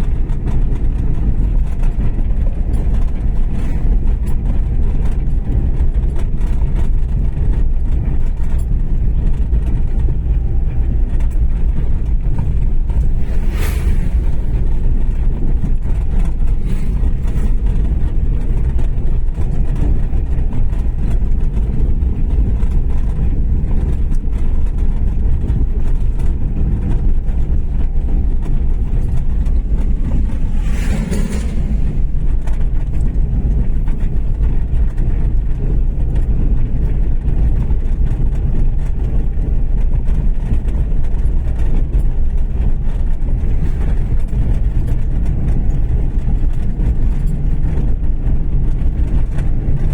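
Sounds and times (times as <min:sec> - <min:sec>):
car interior road and engine noise: 0:00.0 - 0:49.9
brief hissing: 0:13.1 - 0:14.8.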